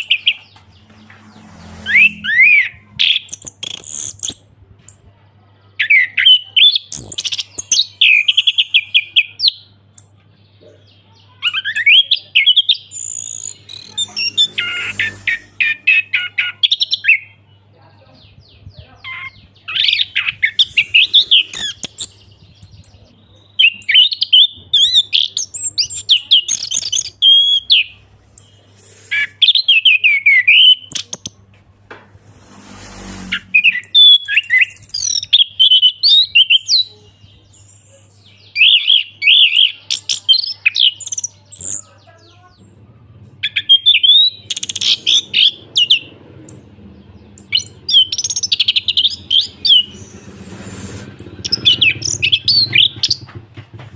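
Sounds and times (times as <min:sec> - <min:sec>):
thrush singing whistles and trills: 0:01.6 - 0:04.5, 0:11.7 - 0:17.3, 0:19.2 - 0:31.4, 0:32.9 - 0:36.9, 0:43.4 - 0:46.6, 0:47.4 - 0:53.3.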